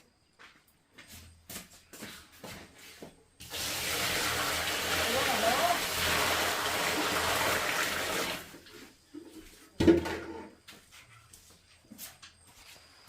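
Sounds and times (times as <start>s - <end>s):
running water: 3.4s - 8.9s.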